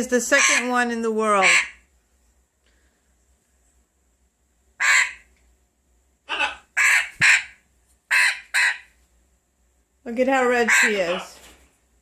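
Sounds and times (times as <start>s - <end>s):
parrot squawking: 0.2s - 1.8s, 4.8s - 5.3s, 6.2s - 8.9s, 10.4s - 11.4s.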